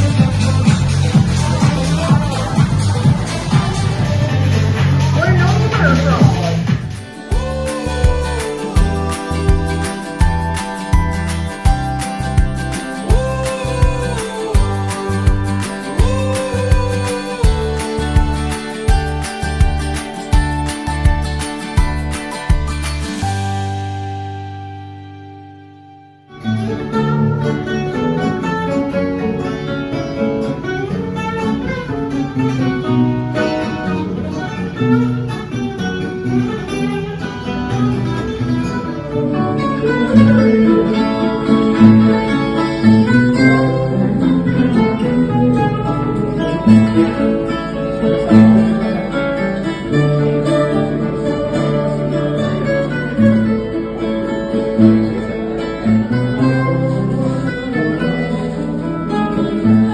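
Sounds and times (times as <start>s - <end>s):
bass line: 0.0s - 49.1s
plucked acoustic guitars: 0.0s - 59.9s.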